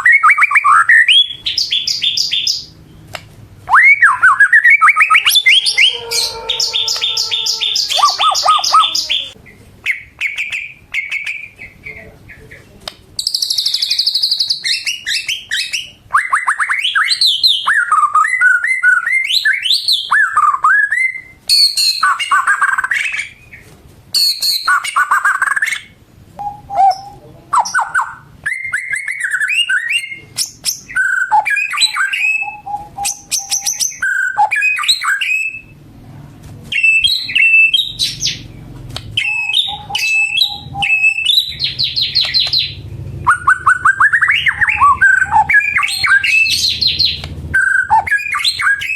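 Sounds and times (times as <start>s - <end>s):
songbird singing varied song: 0.0s - 2.8s, 3.7s - 12.6s, 39.2s - 48.9s.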